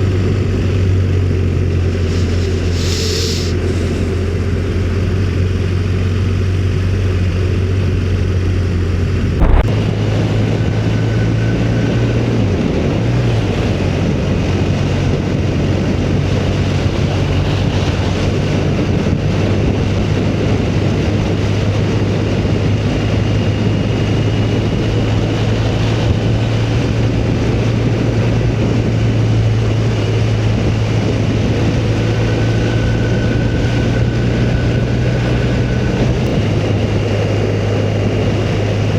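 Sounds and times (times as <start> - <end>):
motorcycle engine cruising: 0.0 - 38.9
wind rush on microphone: 0.0 - 38.9
sharp knock: 9.4 - 9.7.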